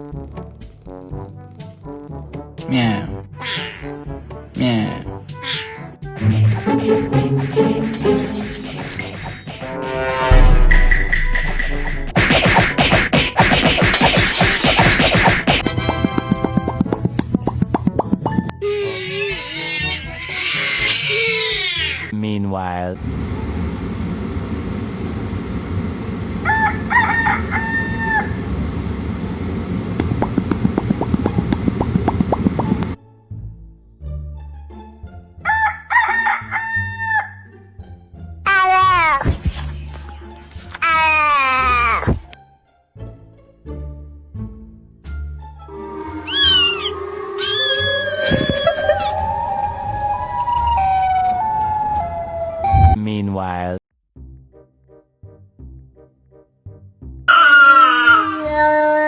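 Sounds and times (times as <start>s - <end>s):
high cat-like cries: 3.4s - 4.0s, 5.4s - 5.9s, 18.6s - 22.1s, 45.8s - 49.4s, 57.3s - 59.0s
low rumble: 10.2s - 12.2s
rooster crowing: 26.4s - 28.5s, 35.4s - 37.5s, 45.7s - 52.6s, 57.3s - 58.6s
rising wailing tone: 45.6s - 53.0s.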